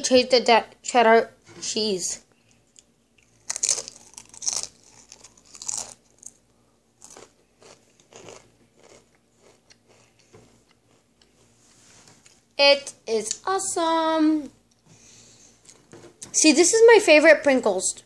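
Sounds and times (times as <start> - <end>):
crisp crunching and chewing: 3.2 - 6.4, 7.0 - 11.5.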